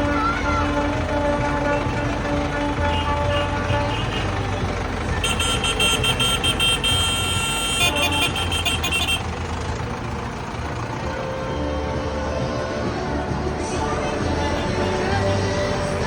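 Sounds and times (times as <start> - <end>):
tractor engine rumbling: 0.0 - 16.0
high-pitched horn beeping: 0.7 - 9.3.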